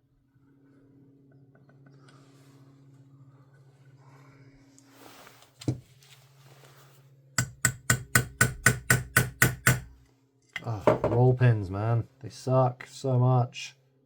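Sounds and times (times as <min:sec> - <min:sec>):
faint low hum: 0:00.0 - 0:14.0
hammer tapping a pin punch: 0:07.4 - 0:10.0.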